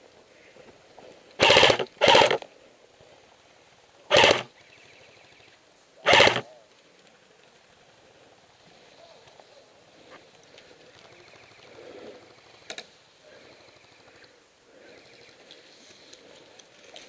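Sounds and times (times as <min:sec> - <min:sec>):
airsoft rifle full-auto bursts: 0:01.4 - 0:02.4, 0:04.1 - 0:04.5, 0:06.0 - 0:06.5.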